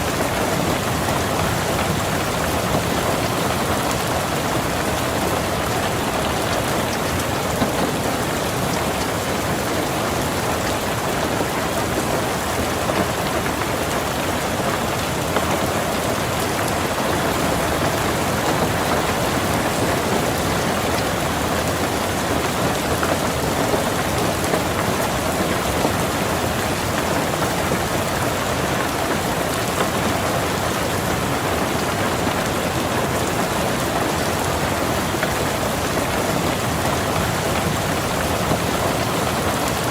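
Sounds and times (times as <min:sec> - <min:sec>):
rain on a car roof: 0:00.0 - 0:39.9.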